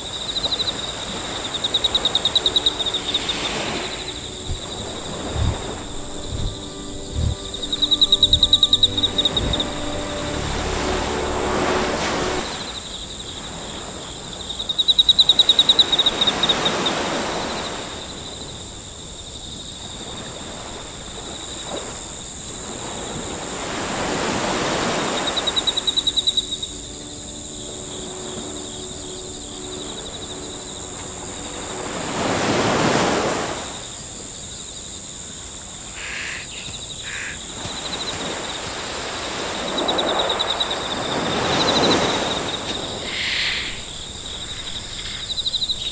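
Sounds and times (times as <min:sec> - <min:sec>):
rushing noise swells: 0:04.0 - 0:12.8
rapid pulsing trill: 0:04.4 - 0:12.5.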